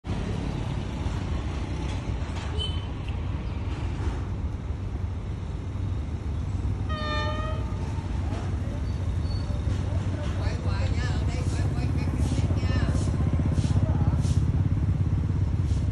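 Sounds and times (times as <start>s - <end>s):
traffic rumble: 0.0s - 15.9s
diesel locomotive approaching: 0.1s - 15.9s
train horn toot: 6.9s - 7.9s.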